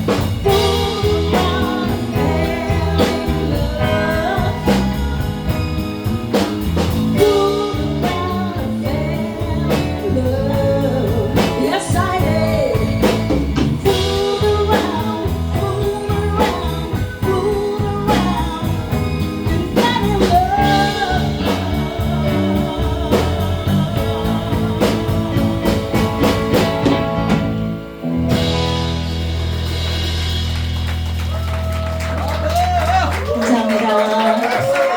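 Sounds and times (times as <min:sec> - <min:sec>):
electric guitar: 0:00.0 - 0:33.4
live blues-rock band: 0:00.0 - 0:34.8
drum kit: 0:00.0 - 0:34.9
person singing: 0:00.1 - 0:06.1, 0:06.8 - 0:26.6.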